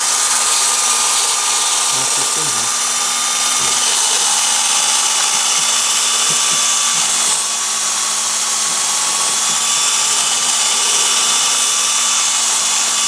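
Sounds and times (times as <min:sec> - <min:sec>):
drill spinning wire wheel: 0:00.0 - 0:13.0.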